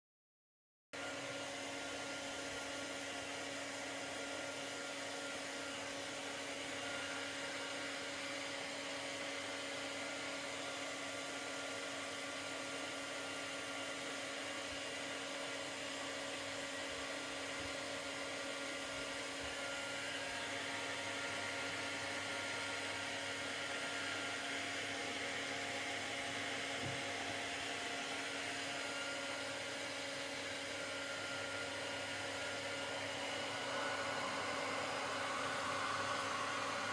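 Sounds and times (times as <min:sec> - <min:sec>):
hair dryer running: 0:01.0 - 0:36.9.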